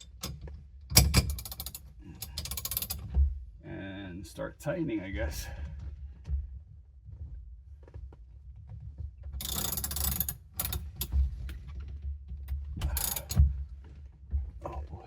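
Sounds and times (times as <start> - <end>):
ratchet wrench clicking: 1.3 - 3.0, 9.4 - 11.1, 12.8 - 13.4.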